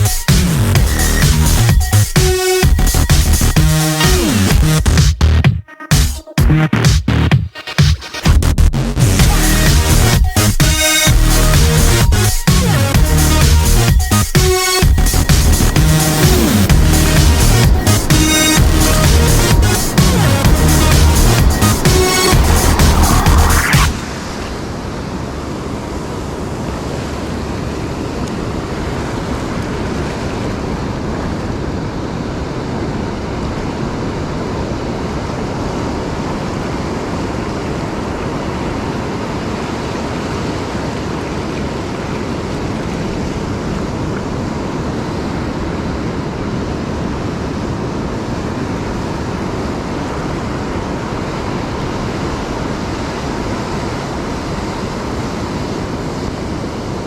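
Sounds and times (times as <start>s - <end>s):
ocean surf on a beach: 16.0s - 57.0s.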